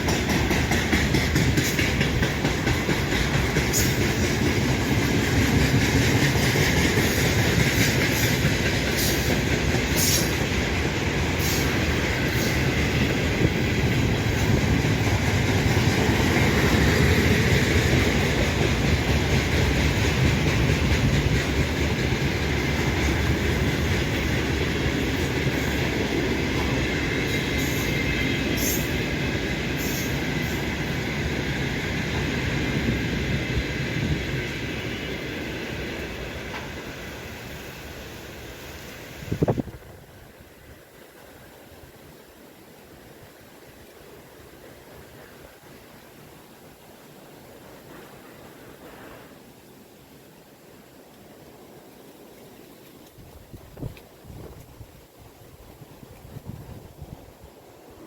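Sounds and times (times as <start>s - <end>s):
wheels clicking over rail joints: 0.0s - 39.8s
freight train wheels rumbling: 0.0s - 41.9s.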